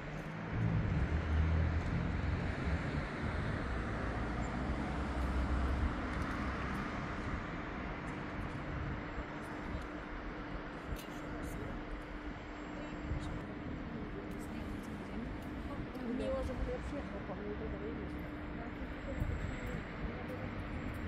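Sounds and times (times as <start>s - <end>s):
passing vehicle engine rumble: 0.0s - 9.3s
steady traffic hum: 0.0s - 21.0s.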